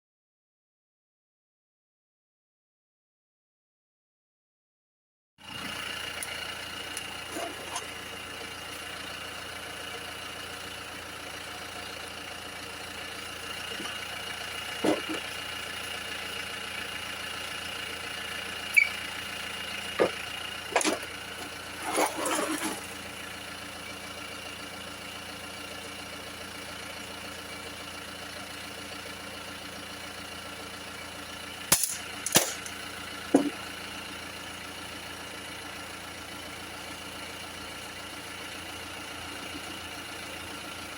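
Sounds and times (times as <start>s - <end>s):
metallic clinks and clanks: 31.7s - 32.8s.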